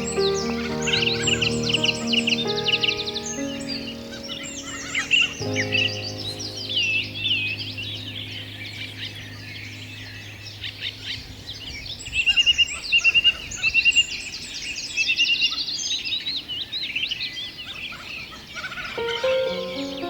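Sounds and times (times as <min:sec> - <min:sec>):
birds chirping and singing: 0:00.0 - 0:16.0.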